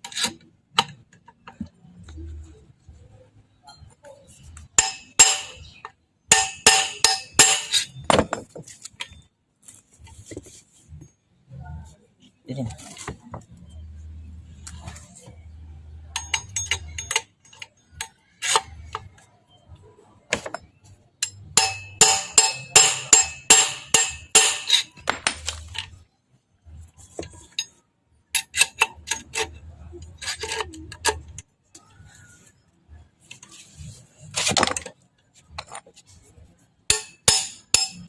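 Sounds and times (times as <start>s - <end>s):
hammer blows on metal: 6.3s - 7.9s, 21.3s - 24.8s.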